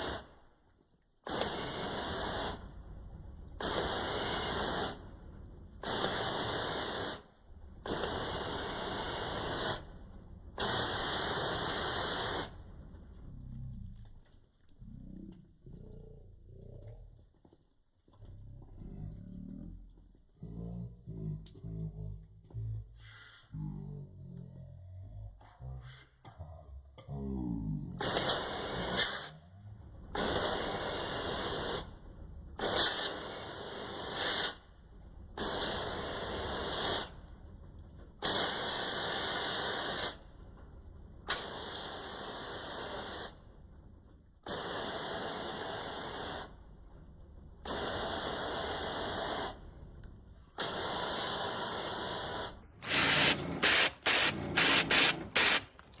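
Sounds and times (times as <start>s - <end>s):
sprayer spraying in bursts: 0.0s - 0.4s, 1.2s - 2.8s, 3.6s - 5.1s, 5.8s - 9.9s, 10.6s - 12.6s, 28.0s - 29.4s, 30.2s - 31.9s, 32.6s - 34.6s, 35.4s - 37.1s, 38.2s - 40.2s, 44.4s - 46.5s, 47.7s - 49.6s, 50.6s - 56.0s.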